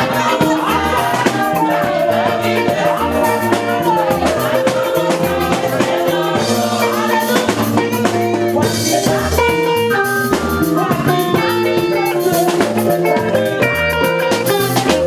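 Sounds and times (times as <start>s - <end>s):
drum kit kick and rimshot hits: 0.0s - 11.6s
bass guitar: 0.0s - 15.0s
keyboard chords: 0.0s - 15.0s
live band playing worship song: 0.0s - 15.0s.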